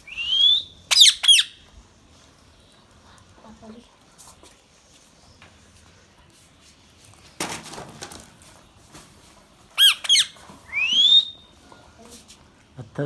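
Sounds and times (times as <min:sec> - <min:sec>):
parrot whistling: 0:00.1 - 0:01.6, 0:09.8 - 0:11.5
parrot harsh call: 0:00.2 - 0:01.6, 0:09.8 - 0:11.4.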